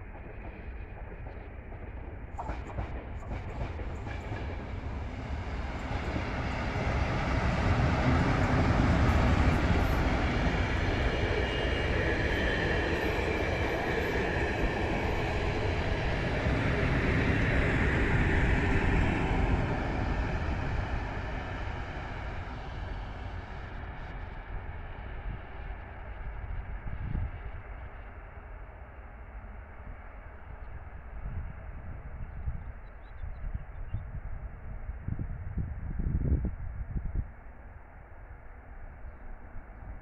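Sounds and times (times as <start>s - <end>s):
passenger train passing: 0.0s - 40.0s.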